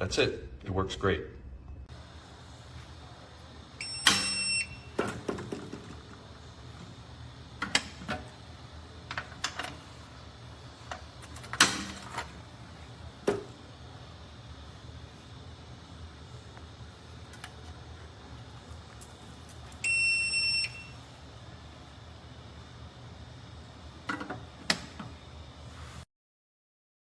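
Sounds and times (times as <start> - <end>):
short electronic beep: 3.8 - 4.9, 19.8 - 21.0.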